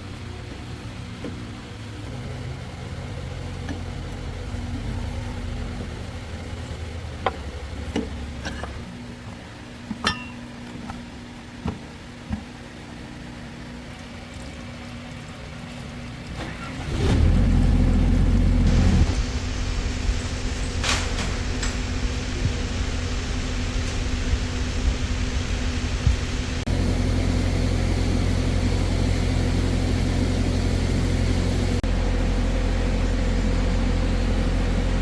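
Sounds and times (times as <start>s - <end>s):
heavy engine rumbling: 0.0s - 8.9s, 16.4s - 35.0s.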